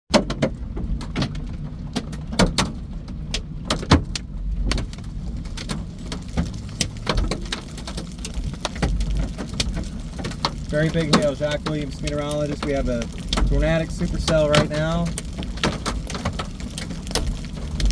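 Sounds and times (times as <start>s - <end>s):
hailstones hitting a vehicle: 0.1s - 17.9s
steady low rumble: 0.6s - 17.9s.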